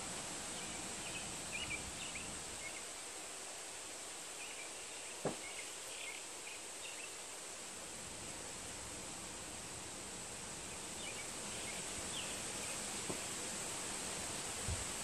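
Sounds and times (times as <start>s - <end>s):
steady background hiss: 0.0s - 15.0s
small birds chirping: 0.5s - 2.9s, 4.4s - 7.2s, 10.6s - 13.4s.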